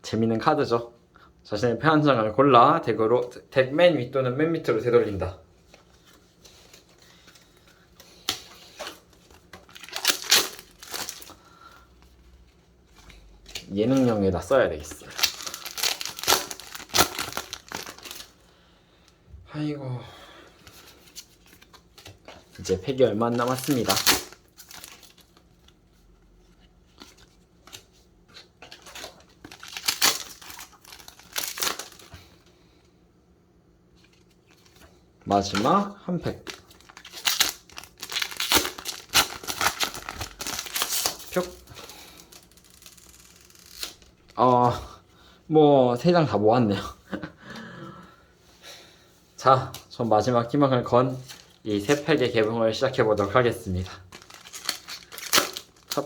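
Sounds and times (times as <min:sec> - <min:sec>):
foil wrapper crinkling: 0:06.5 - 0:12.2, 0:13.1 - 0:18.4, 0:20.6 - 0:26.2, 0:28.6 - 0:32.3, 0:35.3 - 0:44.4, 0:51.2 - 0:56.0.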